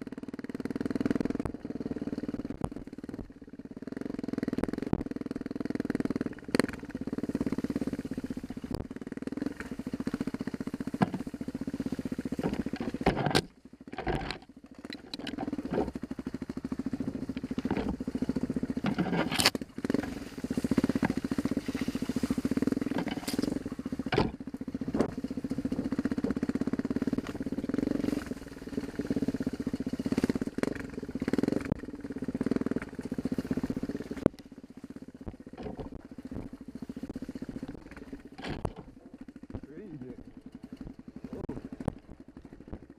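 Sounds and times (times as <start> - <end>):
dirt bike engine: 0.0 - 42.9
knocks and clatter: 12.4 - 16.0, 22.9 - 24.4, 38.3 - 39.7.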